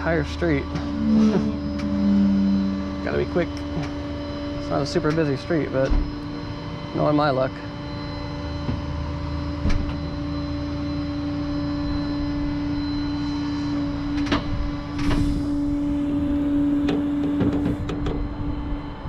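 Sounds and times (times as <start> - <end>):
truck engine running: 0.0 - 6.4.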